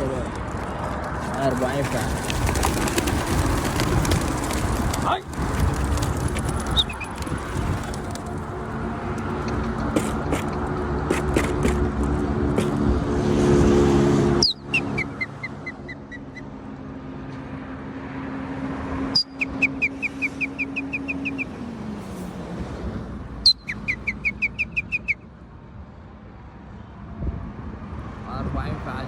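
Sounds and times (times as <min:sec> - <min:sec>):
steady engine hum: 0:00.0 - 0:26.2
bird calling with chirps: 0:14.4 - 0:16.5, 0:19.2 - 0:21.6, 0:23.4 - 0:25.2.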